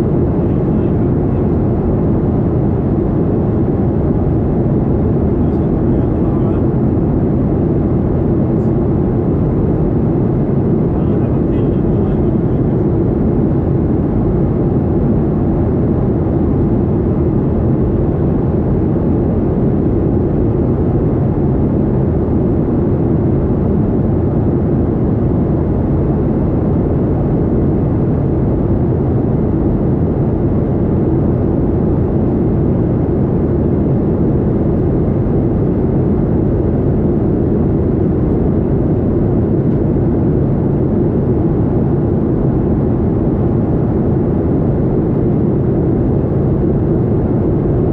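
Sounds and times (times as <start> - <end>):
airliner cabin roar: 0.0 - 47.9.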